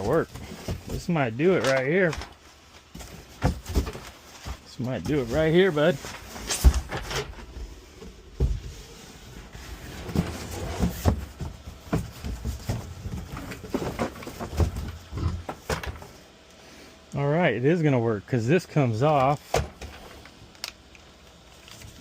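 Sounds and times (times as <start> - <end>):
thumps and knocks on cardboard box: 0.0 - 1.2, 2.9 - 5.5, 10.0 - 16.1
cardboard scraping and rustling: 0.0 - 16.2.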